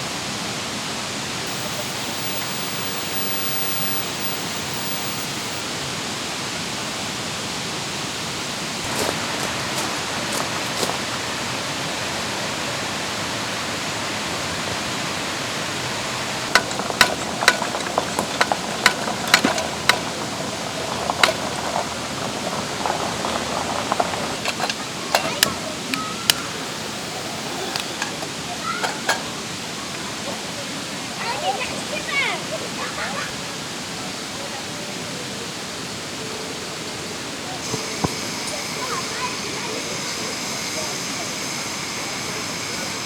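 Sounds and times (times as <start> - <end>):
stream rushing over rocks: 0.0 - 43.0
sharp clicks and knocks: 16.5 - 20.2.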